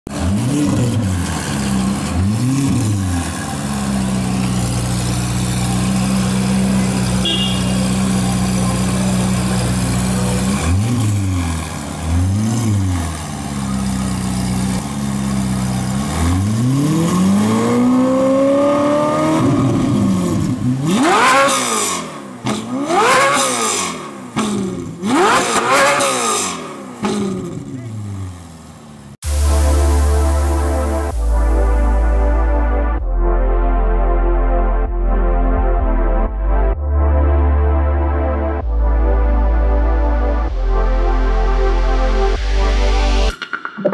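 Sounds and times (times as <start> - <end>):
sports car engine revving: 0.1 - 33.1.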